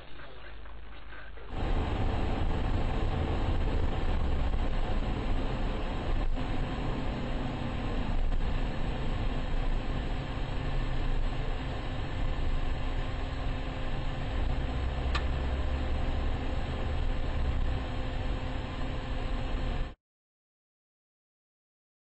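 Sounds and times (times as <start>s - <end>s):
heavy low rumble: 0.0s - 20.0s
road and engine noise inside vehicle: 0.1s - 20.0s
sharp tick: 15.1s - 15.4s.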